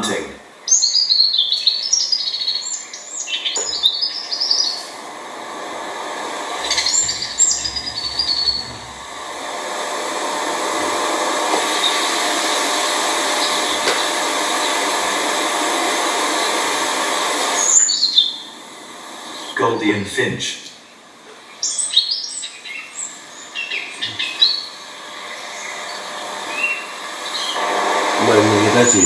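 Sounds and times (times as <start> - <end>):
bird chirping: 0.0 - 4.9, 6.6 - 9.3, 20.6 - 27.6
steady rushing noise: 5.0 - 17.6, 24.9 - 29.0.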